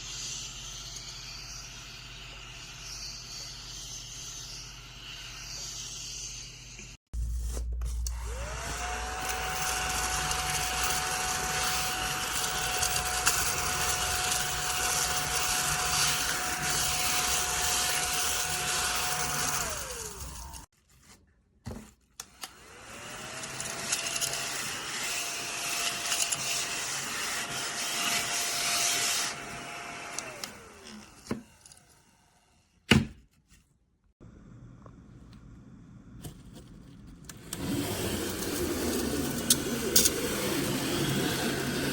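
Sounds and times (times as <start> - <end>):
small vacuum motor whining: 8.0 - 20.7, 22.3 - 32.5, 37.3 - 41.9.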